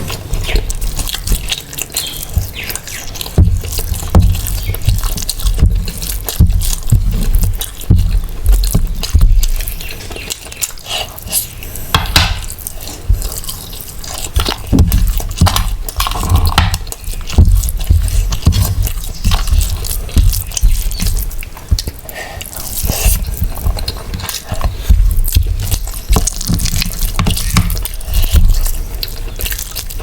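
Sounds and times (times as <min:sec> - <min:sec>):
wet chewing and smacking: 0:00.0 - 0:30.0
low thumps: 0:03.4 - 0:09.6.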